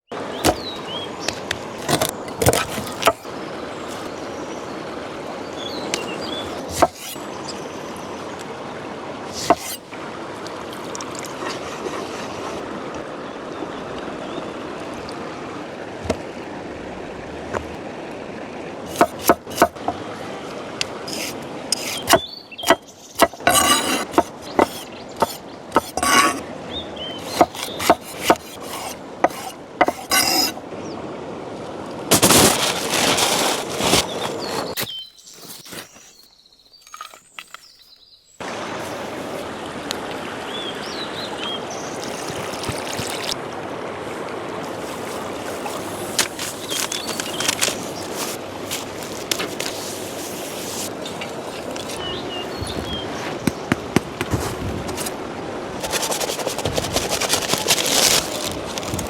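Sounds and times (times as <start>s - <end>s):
wood and utensils knocking: 6.7s - 7.1s, 18.9s - 19.9s, 21.1s - 26.4s, 27.2s - 30.6s.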